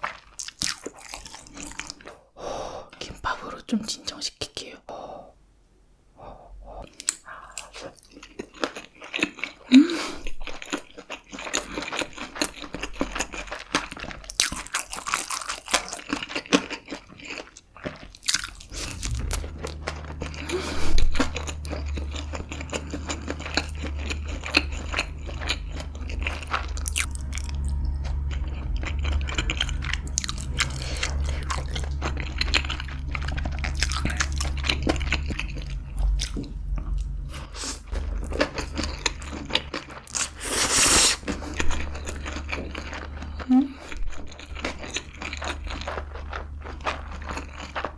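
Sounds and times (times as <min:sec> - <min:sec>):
chewing and biting food: 0:00.0 - 0:02.2, 0:06.8 - 0:47.9
low hum: 0:18.2 - 0:47.9.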